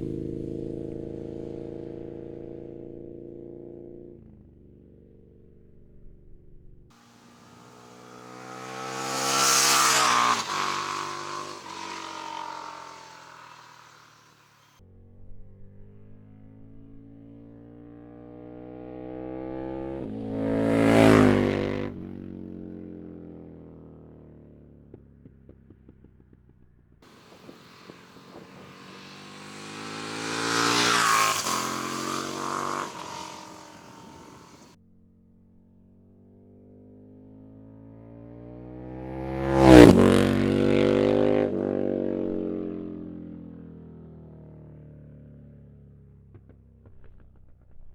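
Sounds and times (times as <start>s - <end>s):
motorcycle passing by: 0.0s - 6.4s, 7.0s - 24.7s, 27.1s - 47.9s
exhaust crackles: 7.0s - 14.7s, 27.1s - 34.8s.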